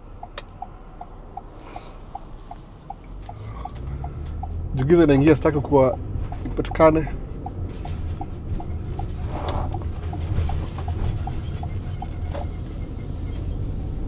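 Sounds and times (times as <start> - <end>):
light regular ticking: 0.0 - 12.2
car road rumble: 0.0 - 14.0.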